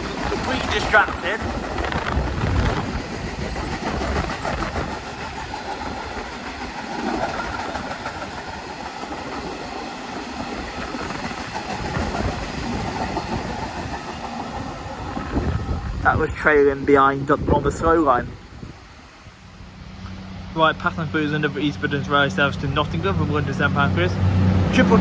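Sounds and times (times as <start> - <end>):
wagons rolling on rails: 0.0 - 15.4
diesel locomotive running past: 0.0 - 16.1, 18.8 - 25.0.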